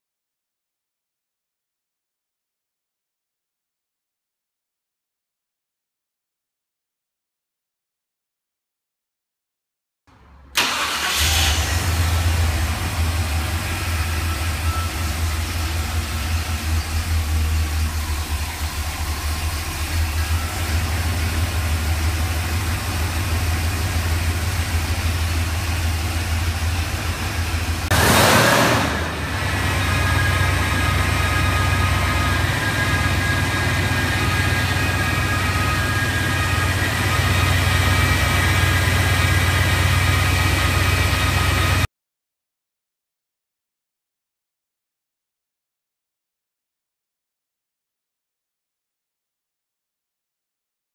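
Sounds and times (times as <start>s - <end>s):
car engine idling: 10.5s - 41.8s
short rushing burst: 27.9s - 29.4s.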